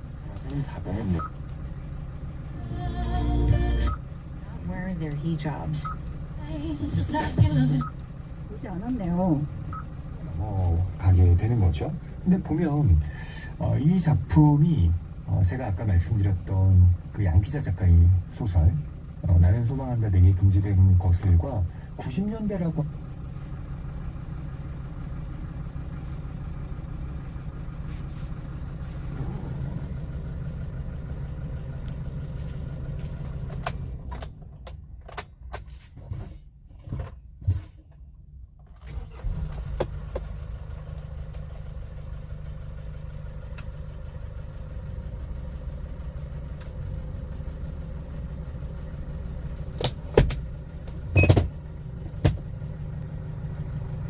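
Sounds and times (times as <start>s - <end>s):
truck engine humming: 0.0s - 36.5s, 37.6s - 54.0s.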